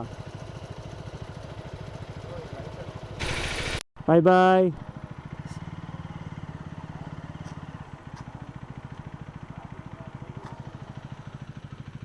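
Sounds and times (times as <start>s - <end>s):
motorcycle engine idling: 3.2s - 3.8s.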